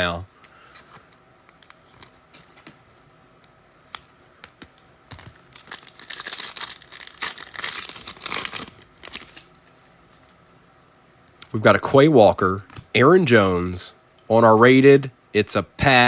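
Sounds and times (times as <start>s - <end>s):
foil wrapper tearing and crinkling: 5.1s - 9.5s.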